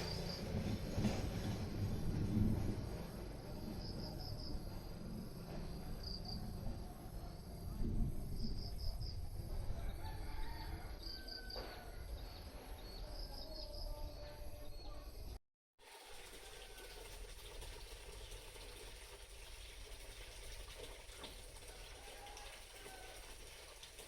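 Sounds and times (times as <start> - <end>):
steady low rumble: 0.0 - 9.8.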